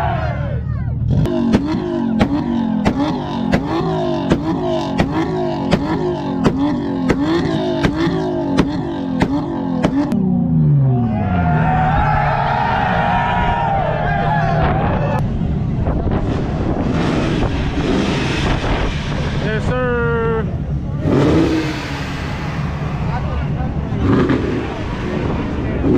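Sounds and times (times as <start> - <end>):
engine revving hard: 1.0 - 13.8, 16.2 - 19.8, 20.9 - 25.9
sharp engine pops: 1.4 - 10.2.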